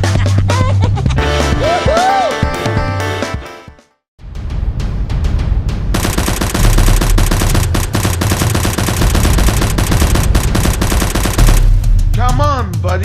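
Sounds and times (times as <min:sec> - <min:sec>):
automatic gunfire: 0:06.0 - 0:11.8.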